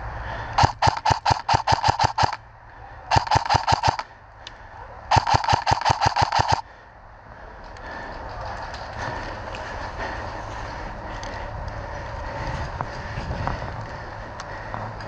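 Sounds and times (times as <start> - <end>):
airsoft gun rapid shots: 0.6 - 2.4, 3.1 - 4.1, 5.1 - 6.6.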